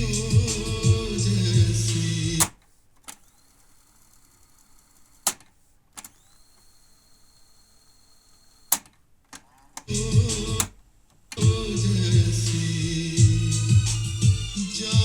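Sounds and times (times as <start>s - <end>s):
music playing: 0.0s - 2.4s, 9.9s - 10.7s, 11.4s - 15.0s.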